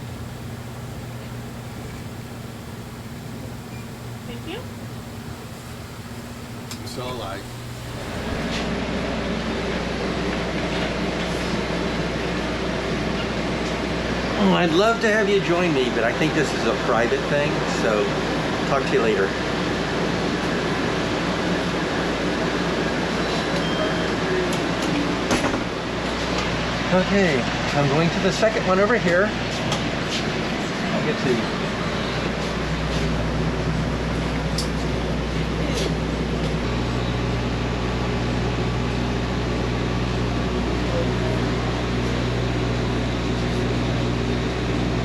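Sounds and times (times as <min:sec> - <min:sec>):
air conditioning hum and rushing air: 0:00.0 - 0:23.6.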